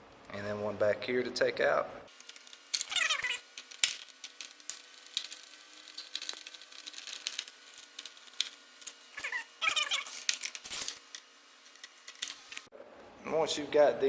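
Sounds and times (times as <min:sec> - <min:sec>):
screws clicking and scraping: 0:02.1 - 0:12.7.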